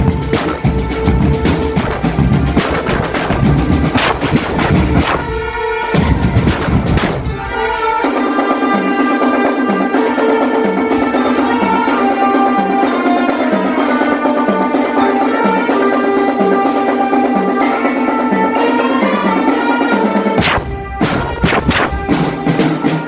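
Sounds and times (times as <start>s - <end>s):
drum band playing: 0.0s - 23.0s
bell-like melody: 7.2s - 23.0s.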